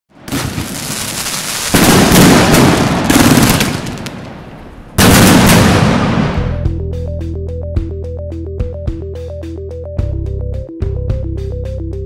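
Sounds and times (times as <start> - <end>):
fireworks hissing and crackling: 0.2 - 4.4.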